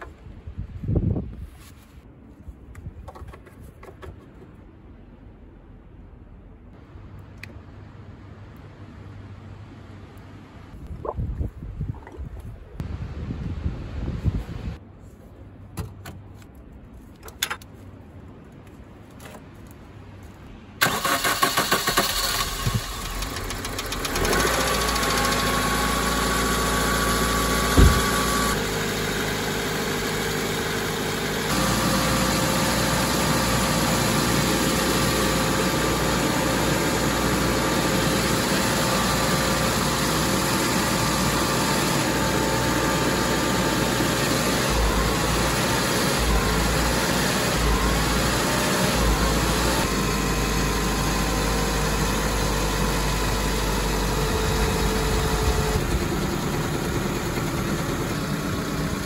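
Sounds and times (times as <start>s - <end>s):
car engine starting and idling: 20.8s - 59.0s.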